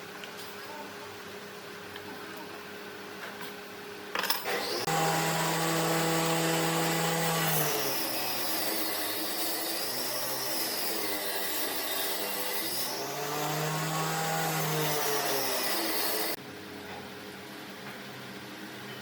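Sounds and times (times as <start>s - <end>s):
power tool cutting wood: 4.4s - 16.4s.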